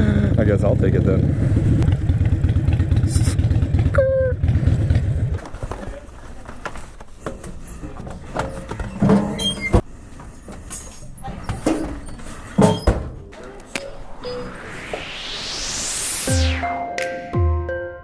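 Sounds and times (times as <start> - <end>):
motorcycle engine running: 0.0 - 5.4.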